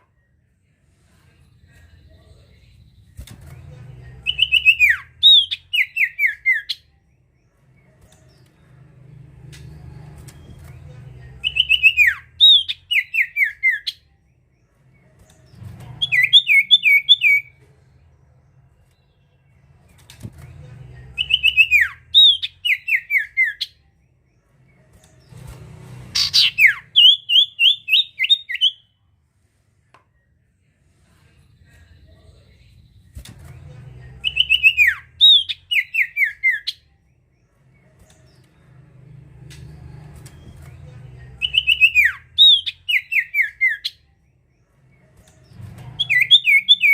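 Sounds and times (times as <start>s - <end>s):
bird singing: 4.1s - 8.9s, 9.6s - 17.6s, 20.9s - 25.0s, 26.2s - 29.0s, 34.2s - 38.8s, 40.3s - 46.9s.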